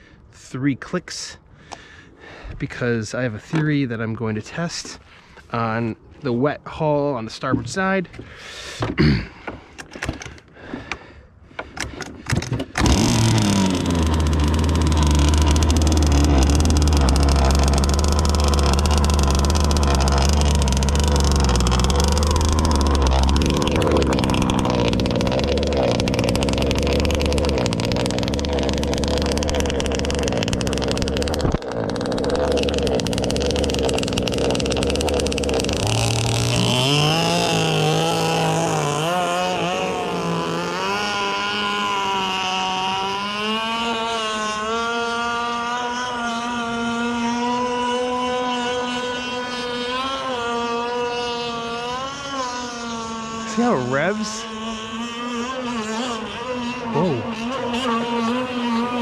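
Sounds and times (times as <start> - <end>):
two-stroke engine running: 12.8 - 59.0.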